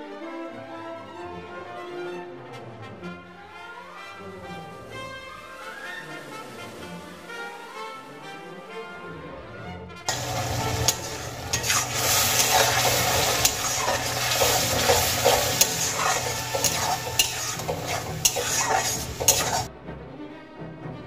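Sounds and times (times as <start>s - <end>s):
paste sizzling in hot oil: 10.1s - 19.7s
spatula scraping and tapping pan: 10.1s - 19.7s.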